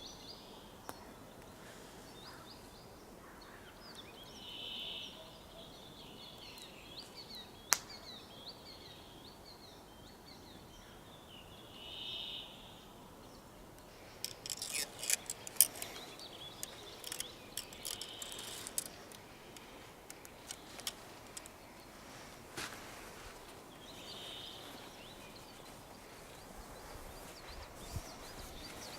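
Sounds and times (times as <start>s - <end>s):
forest birds singing: 0.0s - 28.9s
sharp crackling clicks: 13.8s - 21.8s.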